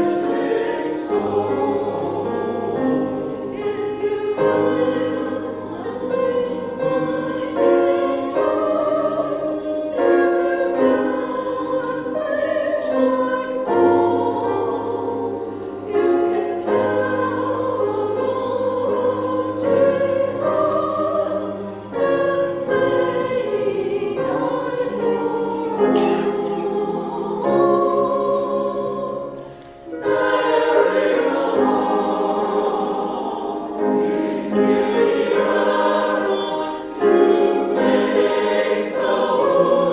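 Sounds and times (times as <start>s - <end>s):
choir singing in parts: 0.0s - 39.9s.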